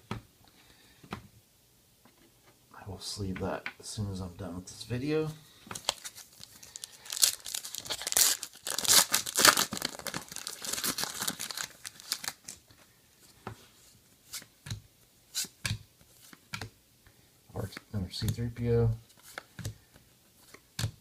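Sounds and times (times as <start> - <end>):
foil wrapper tearing and crinkling: 5.8 - 12.6.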